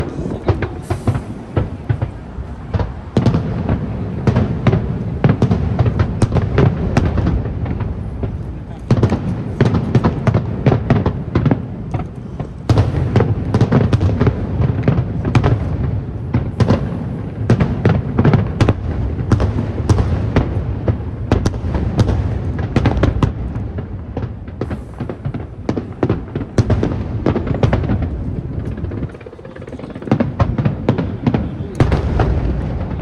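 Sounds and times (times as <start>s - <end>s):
fireworks bangs: 0.0s - 33.0s
low rumble: 27.0s - 33.0s.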